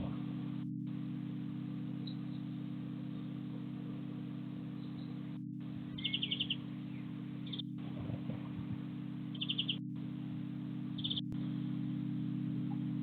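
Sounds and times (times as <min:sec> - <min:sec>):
low hum: 0:00.0 - 0:13.0
small bird chirping: 0:02.0 - 0:03.4, 0:04.7 - 0:07.8, 0:09.3 - 0:09.9, 0:10.9 - 0:11.4.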